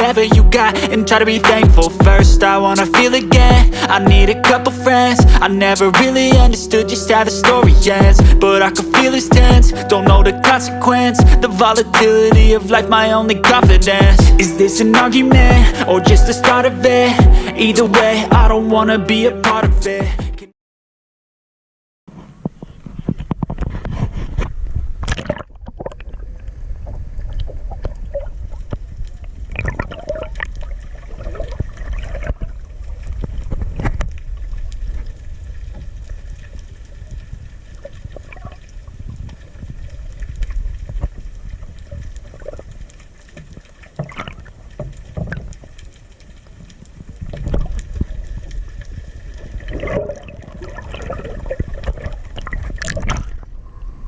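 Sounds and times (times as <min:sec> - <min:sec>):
water splashing around kayak: 0:22.5 - 0:53.8
low rumble: 0:25.6 - 0:43.7, 0:44.4 - 0:54.0.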